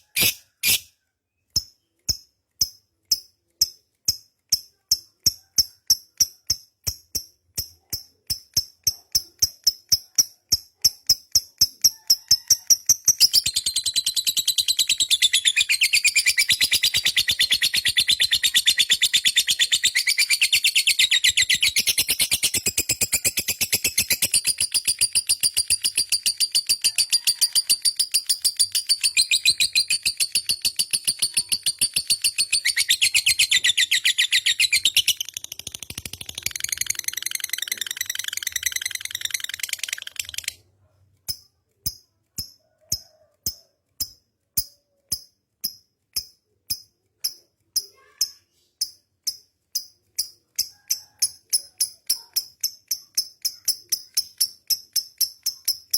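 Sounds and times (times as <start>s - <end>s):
lovebird chattering trill: 0.0s - 0.9s, 8.8s - 40.6s
short high bird chirps: 0.0s - 0.9s, 13.1s - 25.8s, 26.5s - 35.4s.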